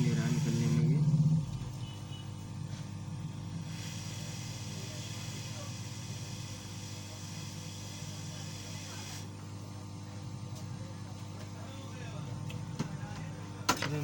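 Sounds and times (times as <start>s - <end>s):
hot air gun hissing: 0.0s - 0.9s, 3.6s - 9.3s.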